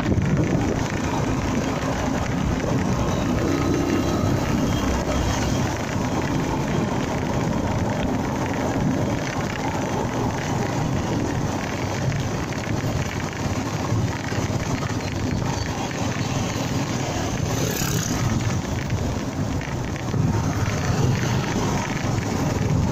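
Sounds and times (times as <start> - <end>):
motorcycle engine: 0.0 - 22.9
wind rushing over microphone: 0.0 - 22.9.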